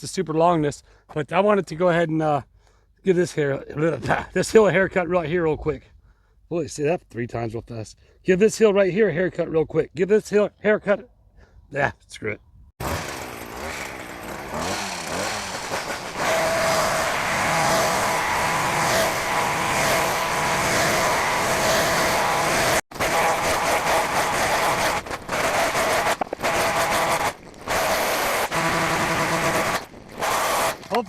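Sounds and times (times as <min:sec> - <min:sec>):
small petrol engine cutting grass: 0:12.8 - 0:31.0.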